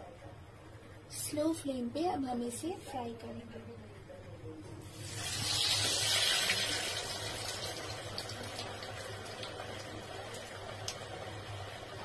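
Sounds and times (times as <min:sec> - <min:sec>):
food sizzling in hot fat: 0:04.9 - 0:11.1.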